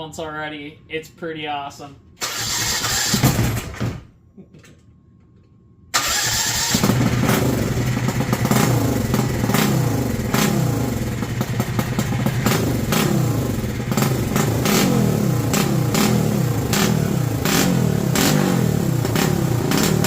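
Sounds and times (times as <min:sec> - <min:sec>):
ultralight engine revving: 0:06.0 - 0:20.0.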